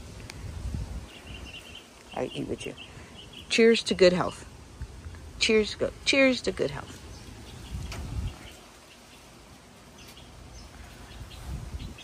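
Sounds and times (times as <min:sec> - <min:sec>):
small birds chirping: 0:00.0 - 0:12.0
low microphone rumble: 0:07.0 - 0:08.7.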